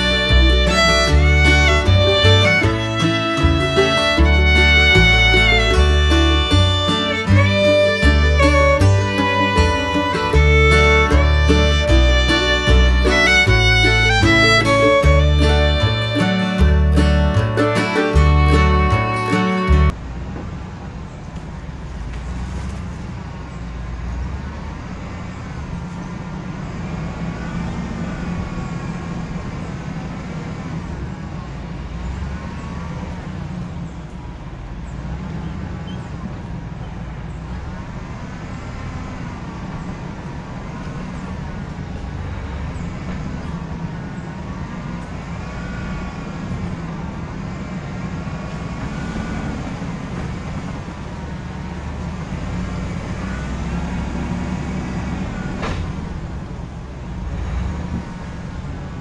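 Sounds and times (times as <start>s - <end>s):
vehicle engine and road rumble: 0.0s - 59.0s.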